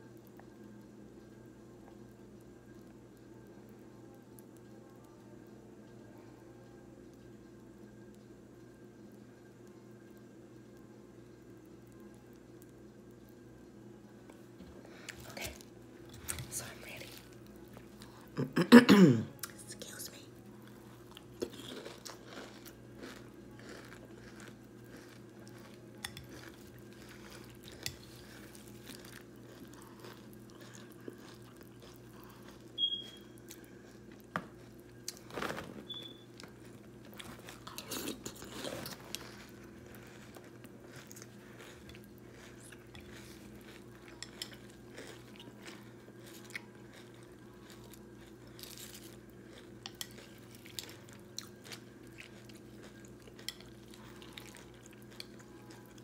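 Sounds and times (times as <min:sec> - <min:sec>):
chewing and crunching cereal: 0:14.2 - 0:18.4, 0:19.4 - 0:56.0.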